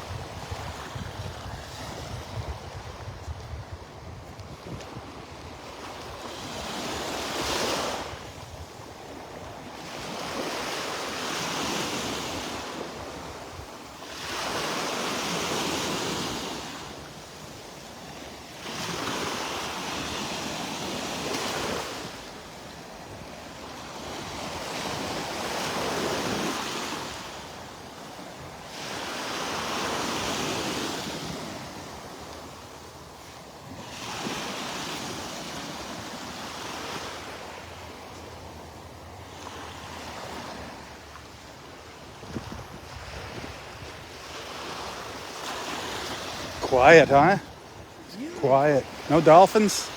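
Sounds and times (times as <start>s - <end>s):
small waves breaking on beach: 0.0s - 49.9s.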